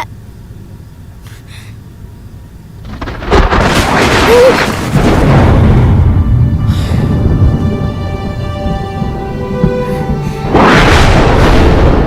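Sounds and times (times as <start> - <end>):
thunder rumbling and cracking: 2.8 - 12.0.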